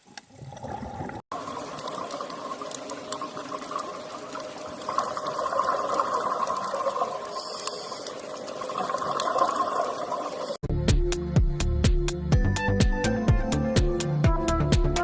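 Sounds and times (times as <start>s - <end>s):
steady water sound: 0.0s - 10.6s
faint ticks: 7.3s - 8.6s.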